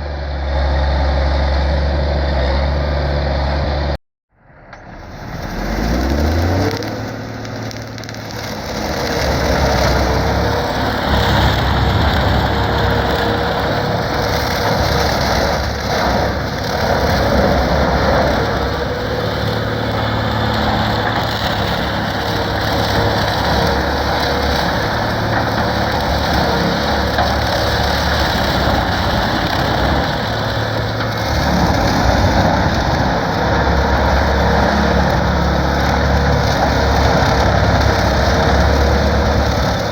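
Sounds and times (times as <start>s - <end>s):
tractor engine revving: 0.0s - 39.9s
bale processor grinding: 5.0s - 39.9s.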